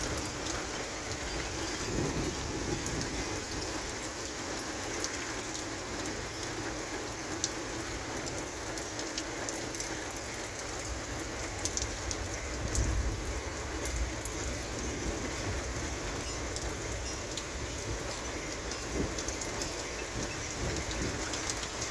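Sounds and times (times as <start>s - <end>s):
low thunder rumble: 0.0s - 4.2s, 10.9s - 21.9s
heavy rain falling: 0.0s - 21.9s.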